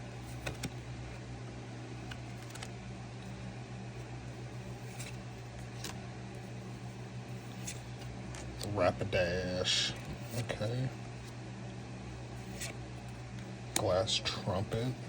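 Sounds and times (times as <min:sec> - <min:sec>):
steady low hum: 0:00.0 - 0:15.0
cards clicking and snapping: 0:00.3 - 0:00.8, 0:02.0 - 0:02.8, 0:04.9 - 0:06.0, 0:12.4 - 0:12.8.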